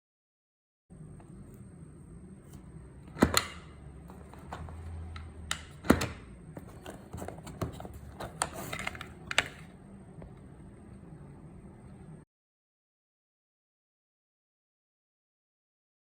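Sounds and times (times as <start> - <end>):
low steady hum: 0.9 - 12.3.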